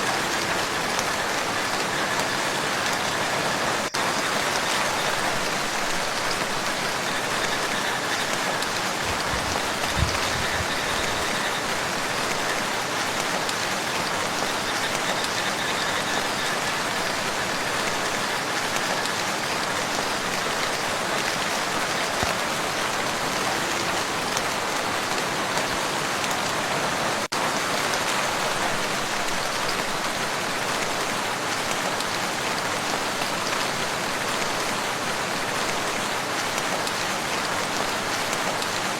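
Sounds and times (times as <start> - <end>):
rain falling on water: 0.0 - 38.9.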